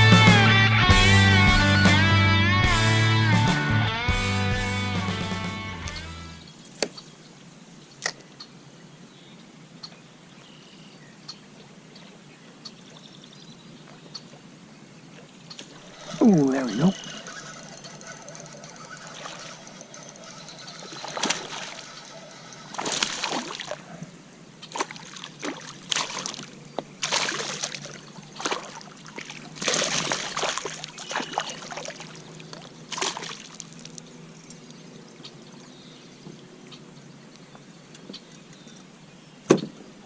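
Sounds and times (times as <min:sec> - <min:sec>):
water splashing: 0:15.6 - 0:34.8.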